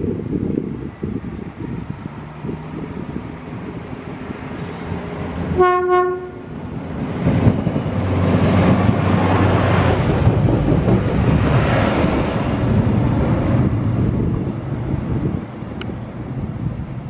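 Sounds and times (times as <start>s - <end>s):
train rumbling: 0.0s - 17.0s
train horn blast: 5.5s - 6.5s.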